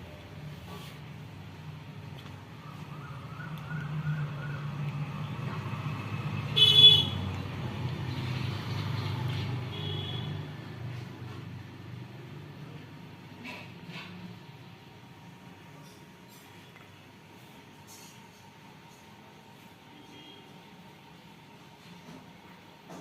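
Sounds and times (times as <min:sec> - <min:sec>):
road traffic hum: 0:00.0 - 0:14.9
car horn toot: 0:06.6 - 0:07.2, 0:09.7 - 0:10.4.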